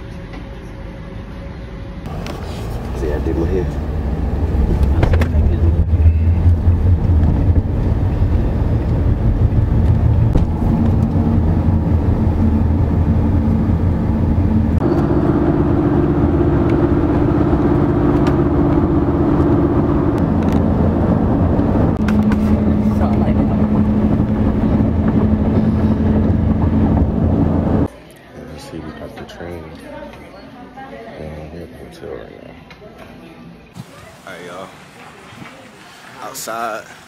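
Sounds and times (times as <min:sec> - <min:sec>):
vehicle engine rumble: 0:02.0 - 0:27.9.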